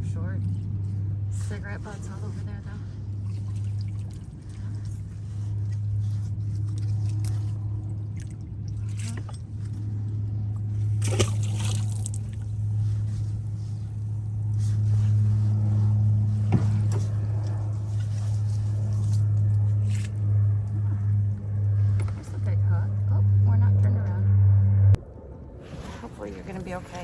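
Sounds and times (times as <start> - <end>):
steady low hum: 0.0 - 27.0
water splashing and dripping: 11.0 - 12.5.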